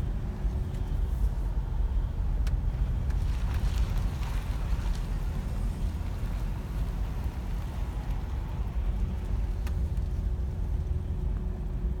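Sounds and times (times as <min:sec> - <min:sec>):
light tick: 0:09.6 - 0:10.1.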